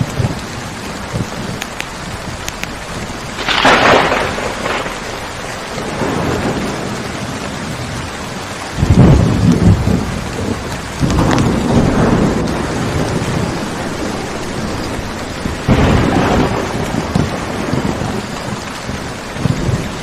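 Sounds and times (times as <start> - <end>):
deep rumble of thunder: 0.0 - 20.0
steady rainfall: 0.0 - 20.0
sharp thunderclap: 1.0 - 20.0.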